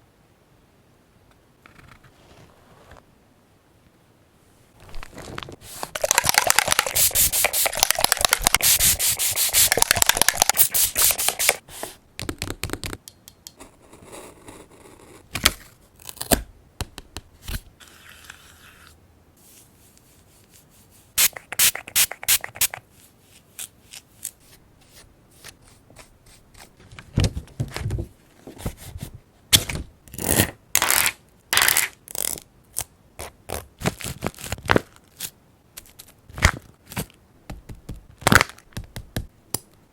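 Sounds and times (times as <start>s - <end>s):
paper crinkling and tapping: 4.8s - 11.6s, 35.8s - 39.3s
paper rubbed with scratchy strokes: 5.6s - 11.6s.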